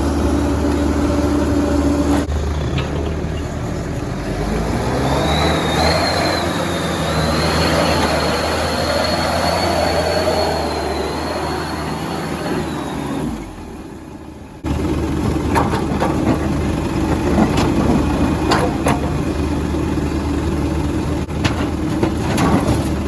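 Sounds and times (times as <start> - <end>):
diesel engine running: 0.0 - 23.0
metallic knocks and clanks: 2.1 - 4.0, 15.2 - 19.6, 21.3 - 23.0.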